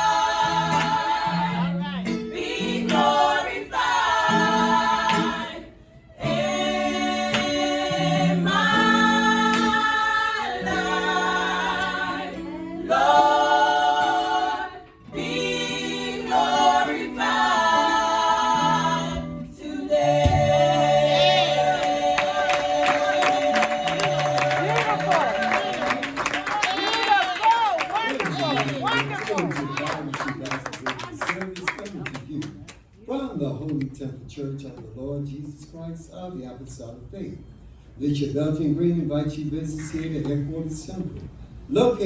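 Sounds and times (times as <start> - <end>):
choir singing gospel: 0.0 - 27.5.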